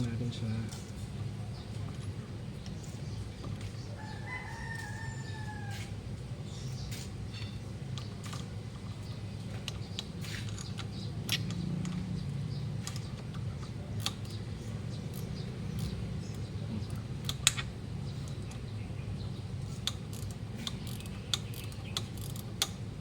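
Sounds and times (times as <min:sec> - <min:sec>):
steady low hum: 0:00.0 - 0:23.0
wrenches clicking on bolts: 0:09.4 - 0:18.7, 0:19.6 - 0:22.9.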